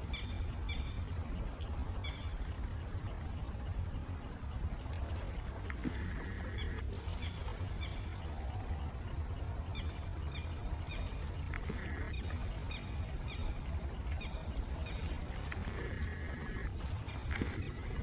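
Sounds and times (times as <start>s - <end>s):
bird chirping: 0.0s - 18.0s
steady low rumble: 0.0s - 18.0s.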